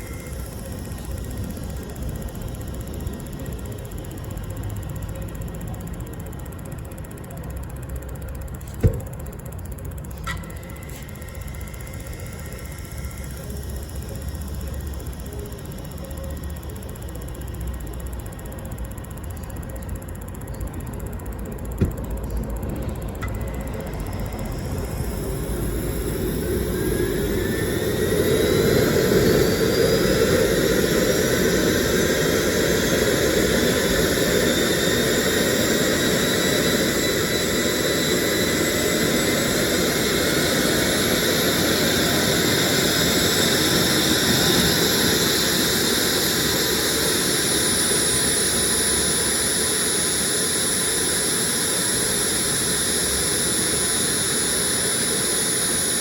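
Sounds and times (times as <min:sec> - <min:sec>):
thin high tone: 0:00.0 - 0:01.8
turbojet engine whine: 0:00.0 - 0:56.0.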